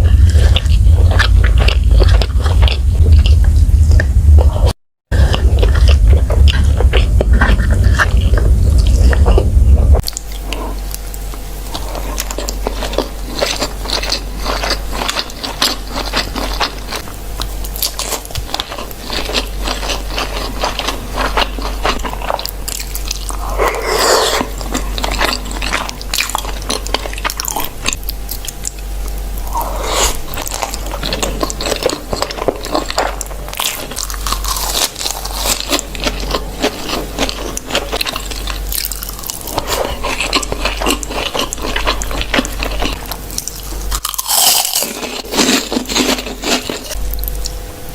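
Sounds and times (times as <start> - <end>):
chewing and biting: 0.0 - 47.6.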